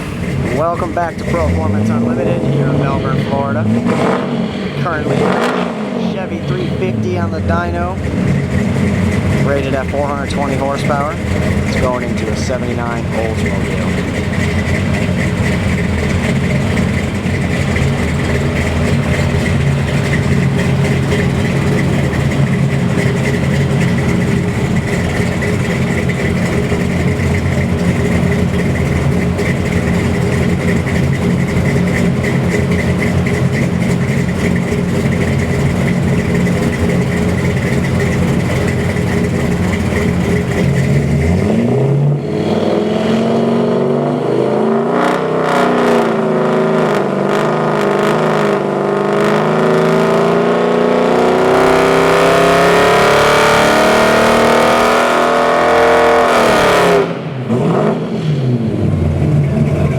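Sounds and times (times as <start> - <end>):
engine running and revving: 0.0 - 59.9.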